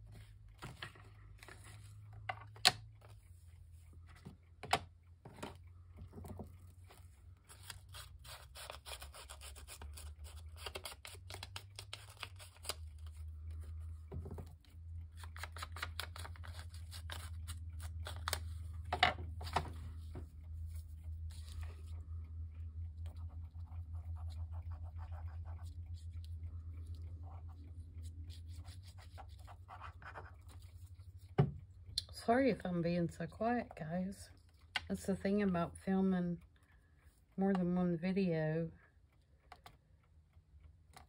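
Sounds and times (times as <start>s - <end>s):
low steady hum: 0.0s - 41.0s
scissors cutting paper: 7.5s - 13.2s
paper rustling: 15.2s - 18.7s, 19.4s - 22.0s.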